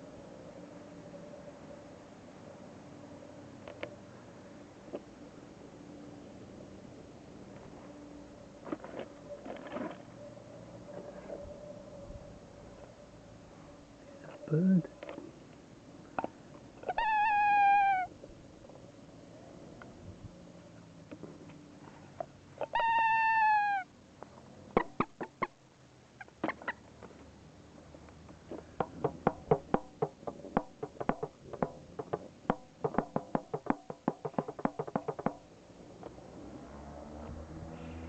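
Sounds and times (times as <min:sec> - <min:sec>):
drawn-out animal call: 0:22.6 - 0:23.9.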